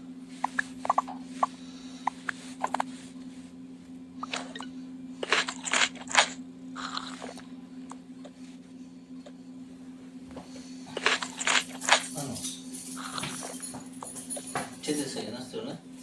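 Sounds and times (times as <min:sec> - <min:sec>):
steady low hum: 0:00.0 - 0:16.0
crunching: 0:05.2 - 0:07.4, 0:11.0 - 0:12.3.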